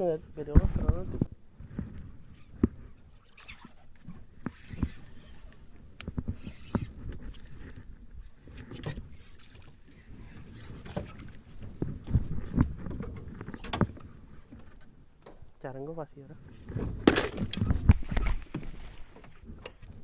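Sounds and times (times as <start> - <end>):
knocks and thuds in a boat: 0.5 - 3.0, 10.7 - 15.5, 16.5 - 20.0.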